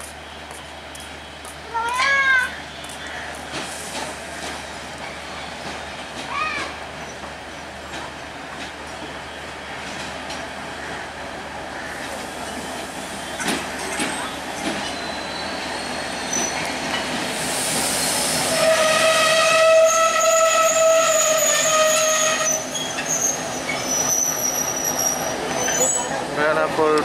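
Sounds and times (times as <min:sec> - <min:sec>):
train rumbling: 0:00.0 - 0:27.0
locomotive horn: 0:18.5 - 0:22.7.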